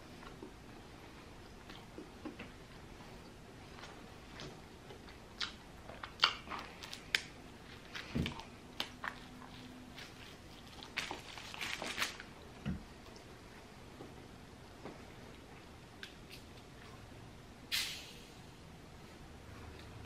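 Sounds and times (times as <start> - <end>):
man chewing with wet smacks: 0.0 - 13.4.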